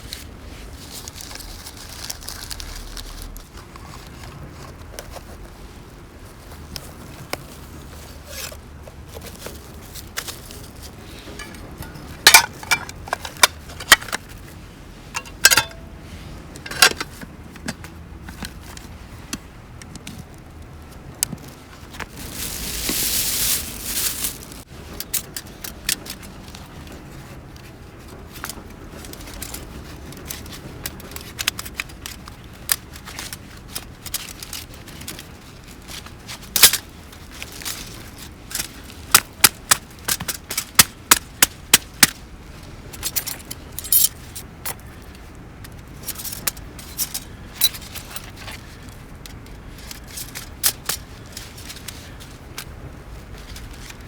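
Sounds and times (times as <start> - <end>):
metal cookware clinking and scraping: 11.3 - 14.0, 15.2 - 15.9.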